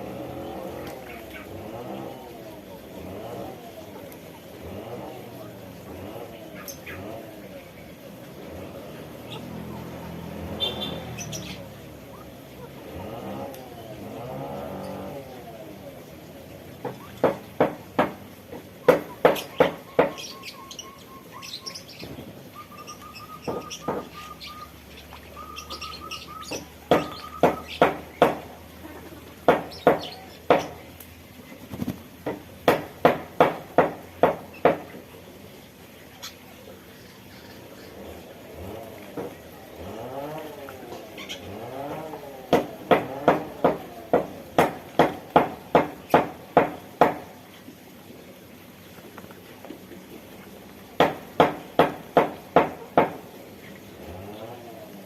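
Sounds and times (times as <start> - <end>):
small birds chirping: 0.0 - 55.0
sharp knocks: 16.8 - 20.2, 23.5 - 24.2, 26.5 - 28.5, 29.4 - 30.8, 32.2 - 35.0, 41.9 - 47.3, 51.0 - 53.3.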